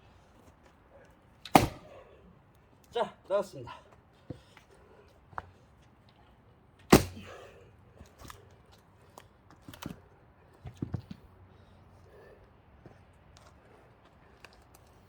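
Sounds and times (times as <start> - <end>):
splitting tool striking log: 1.5 - 1.9, 6.9 - 7.3.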